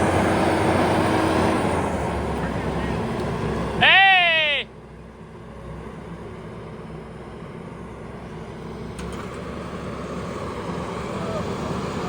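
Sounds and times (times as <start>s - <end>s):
heavy equipment engine running: 0.0s - 12.0s.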